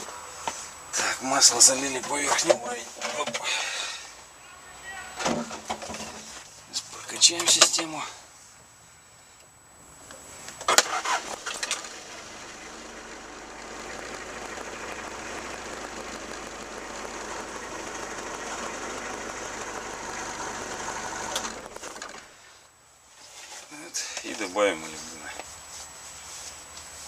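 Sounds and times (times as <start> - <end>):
diesel engine starting and running: 10.6 - 22.6.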